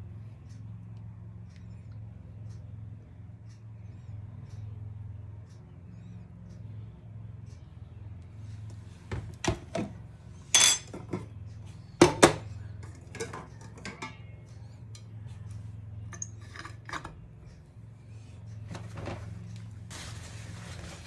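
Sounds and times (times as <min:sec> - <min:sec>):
steady low hum: 0:00.0 - 0:21.0
kitchenware clinking and knocking: 0:10.6 - 0:11.3, 0:12.0 - 0:14.3.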